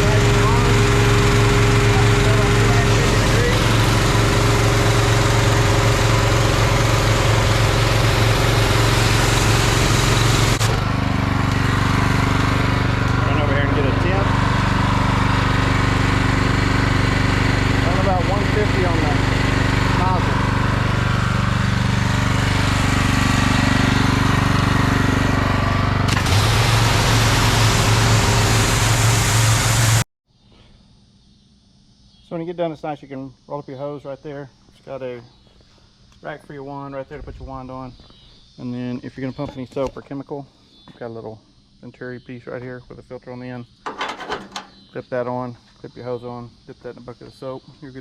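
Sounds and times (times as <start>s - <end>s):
pressure washer engine hum: 0.0s - 30.0s, 43.8s - 44.9s
pressure washer spray hiss: 26.1s - 30.0s.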